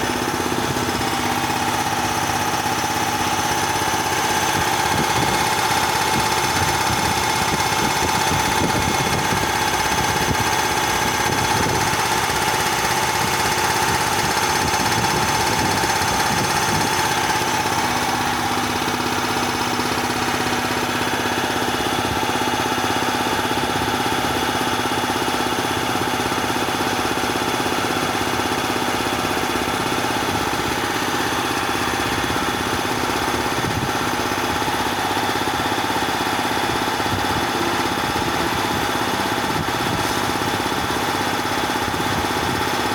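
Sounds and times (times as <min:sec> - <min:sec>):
air compressor whining drone: 0:00.0 - 0:42.9.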